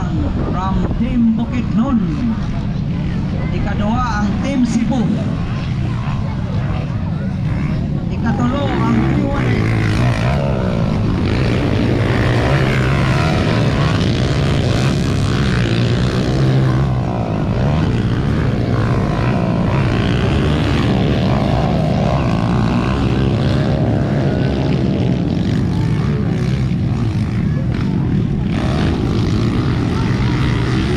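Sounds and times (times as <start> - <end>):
motocross motorcycles revving: 0.0 - 30.9.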